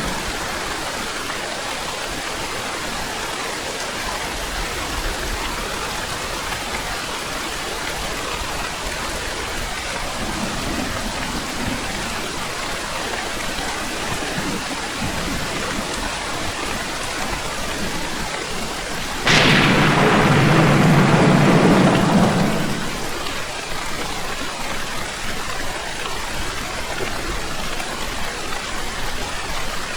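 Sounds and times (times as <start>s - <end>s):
heavy rain falling: 17.2s - 23.8s
thunder clap and rumble: 19.3s - 23.5s.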